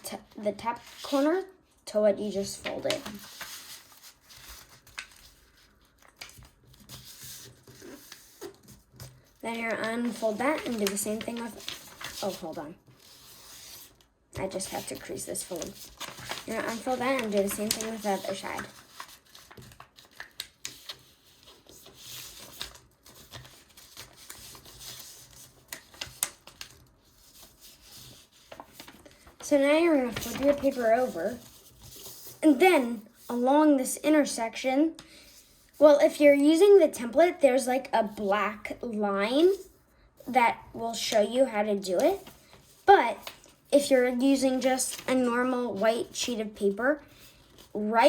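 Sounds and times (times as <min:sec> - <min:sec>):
paper rustling and crinkling: 0:02.3 - 0:33.2, 0:41.8 - 0:47.8.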